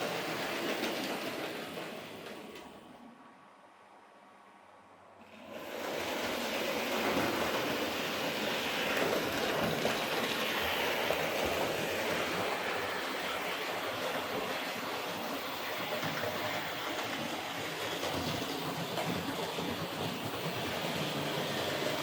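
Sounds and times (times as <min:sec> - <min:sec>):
model locomotive motor whirring: 0:05.3 - 0:22.0.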